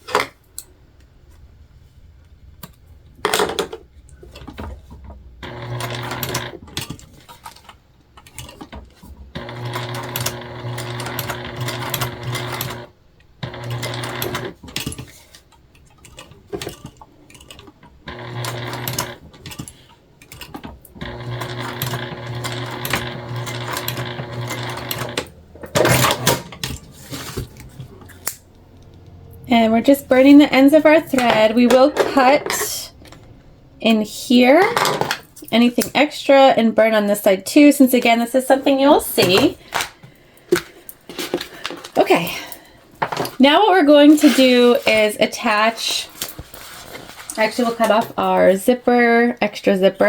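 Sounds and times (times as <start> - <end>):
sewing machine running: 5.4 - 6.9, 9.3 - 14.9, 18.0 - 27.7.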